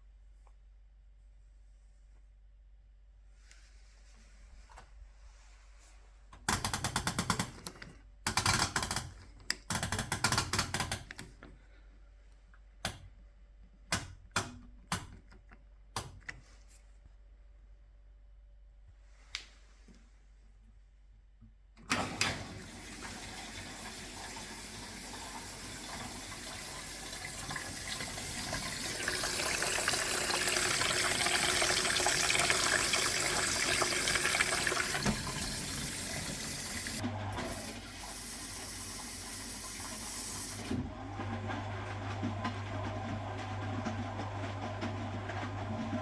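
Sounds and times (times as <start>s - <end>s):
water rushing into washing machine: 21.9s - 46.0s.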